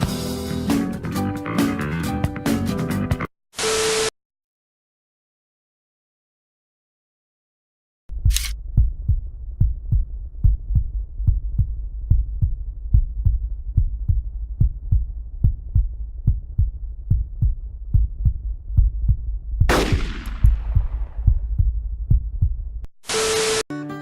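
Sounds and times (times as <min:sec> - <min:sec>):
heartbeat thuds: 0:08.1 - 0:22.9
low rumble: 0:08.1 - 0:22.9.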